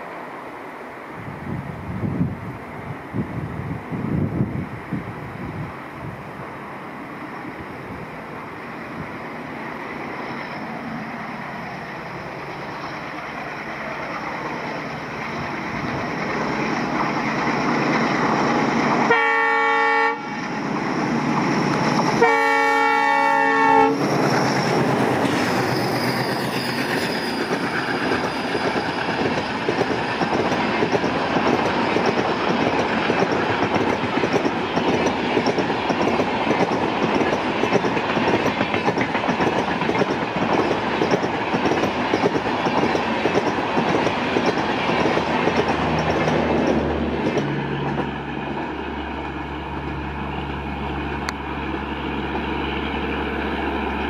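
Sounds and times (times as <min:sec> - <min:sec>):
train rattling past: 0:00.0 - 0:54.0
locomotive horn blasts: 0:19.1 - 0:20.4, 0:22.2 - 0:24.1
wheels clacking over rail joints: 0:24.0 - 0:50.0.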